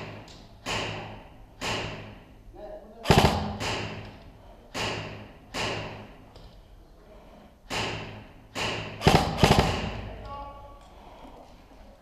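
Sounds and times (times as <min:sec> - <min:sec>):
airsoft gun shots echoing: 0:00.0 - 0:02.2, 0:03.0 - 0:04.1, 0:07.7 - 0:10.2.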